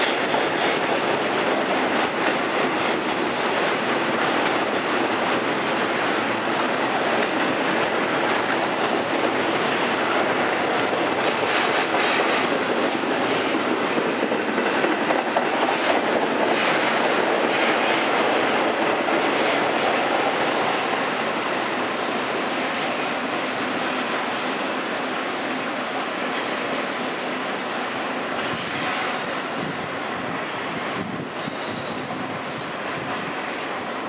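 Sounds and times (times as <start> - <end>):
wheels clacking over rail joints: 0.0 - 21.4
train wheels rumbling on rail: 0.0 - 34.0
high wheel squeals: 31.4 - 32.2.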